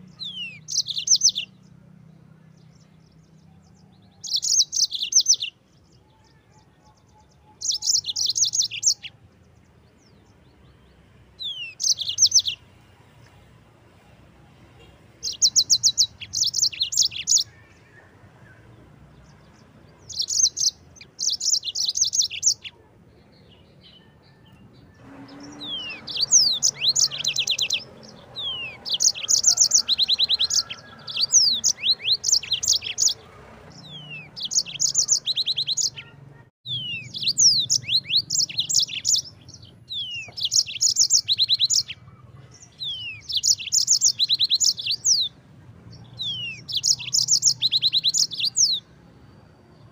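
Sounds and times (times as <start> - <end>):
canary singing high trills: 0.0 - 1.6, 3.7 - 9.2, 11.4 - 12.7, 15.1 - 18.6, 19.9 - 22.7, 23.9 - 48.9.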